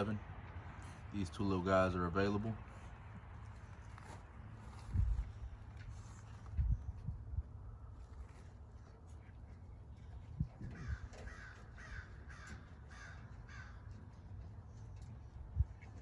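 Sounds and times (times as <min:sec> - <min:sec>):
crow cawing: 0:10.7 - 0:14.2.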